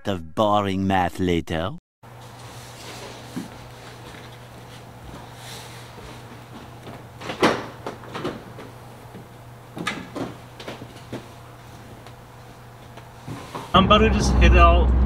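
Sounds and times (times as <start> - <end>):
steady low hum: 2.0 - 15.0
door knocks and clunks: 7.2 - 8.7.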